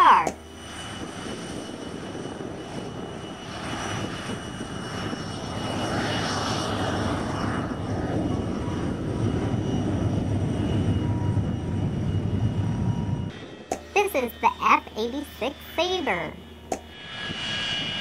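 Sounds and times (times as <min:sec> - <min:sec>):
jet engine rush with whine: 0:00.0 - 0:18.0.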